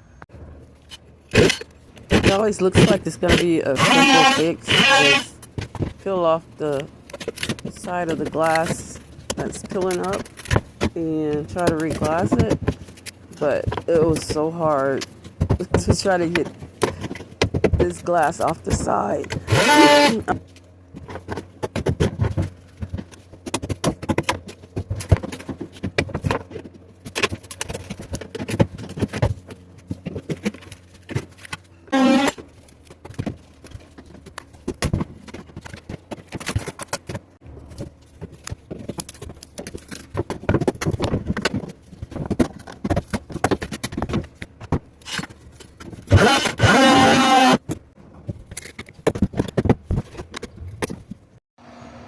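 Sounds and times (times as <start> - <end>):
hand tools knocking and scraping: 1.4 - 20.4.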